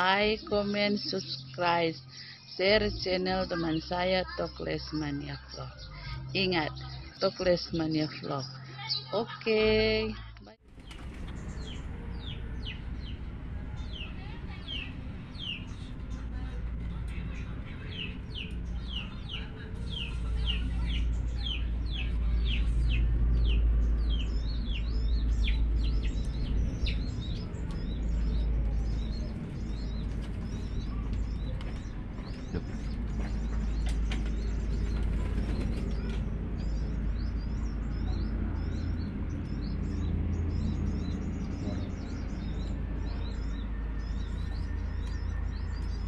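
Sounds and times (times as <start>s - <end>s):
steady low rumble: 0.0s - 46.0s
small bird chirping: 10.8s - 46.0s.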